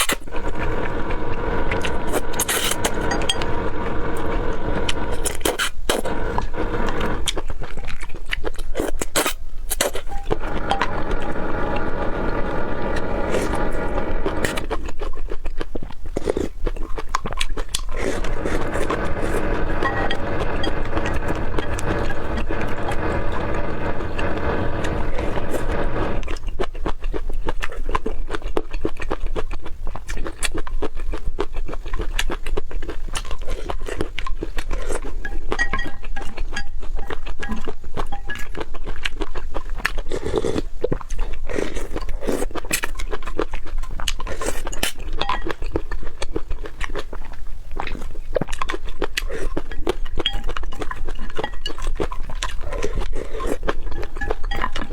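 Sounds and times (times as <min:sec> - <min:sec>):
steady low hum: 0:00.0 - 0:07.4, 0:10.0 - 0:14.8, 0:17.9 - 0:26.4
steady pitched tone: 0:00.2 - 0:07.3, 0:10.2 - 0:14.7, 0:18.0 - 0:26.3
wet chewing clicks and crunches: 0:06.8 - 0:12.0, 0:13.0 - 0:19.6, 0:26.2 - 0:54.9.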